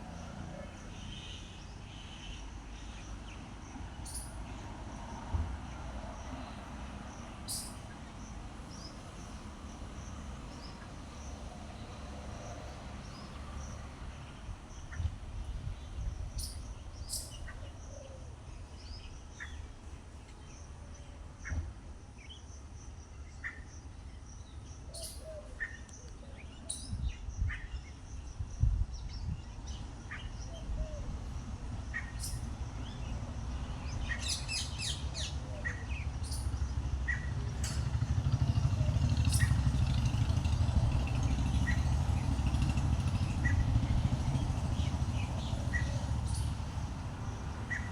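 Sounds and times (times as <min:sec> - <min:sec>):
birds chirping: 0:06.1 - 0:20.6, 0:29.0 - 0:47.9.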